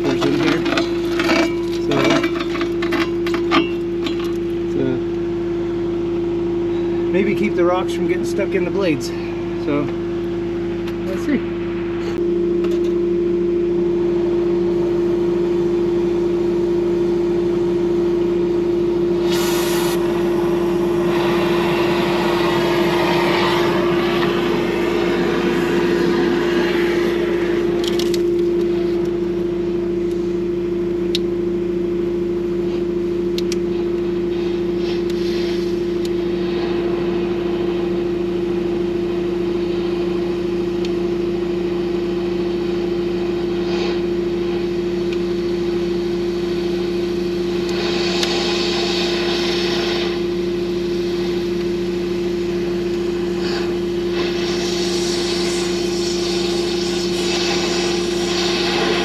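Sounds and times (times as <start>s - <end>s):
engine running steadily: 0.0s - 59.0s
hissing: 19.2s - 27.8s, 53.4s - 59.0s.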